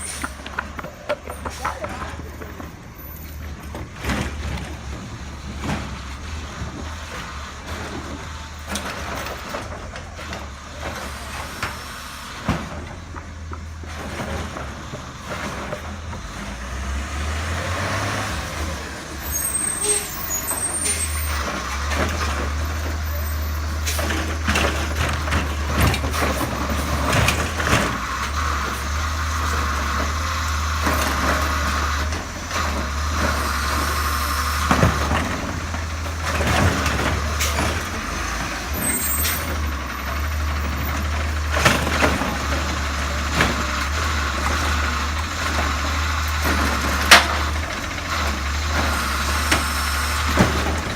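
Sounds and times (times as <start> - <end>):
garbage truck engine running: 0.0 - 50.9
high squeal: 19.2 - 21.5
knocks and clanks: 20.8 - 33.4.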